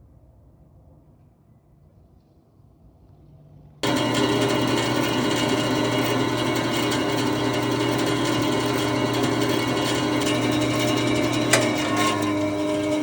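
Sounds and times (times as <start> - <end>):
bandsaw whirring: 3.8 - 13.0.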